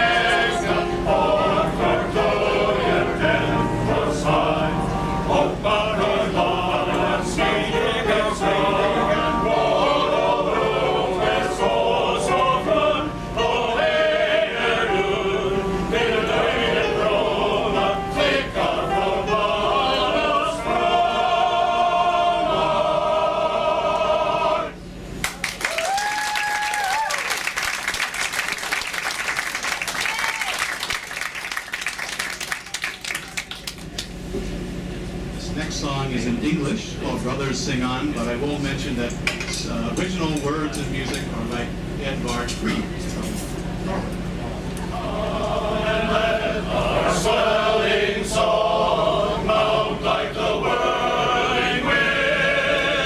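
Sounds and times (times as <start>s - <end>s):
male choir singing: 0.0s - 24.9s, 44.9s - 53.0s.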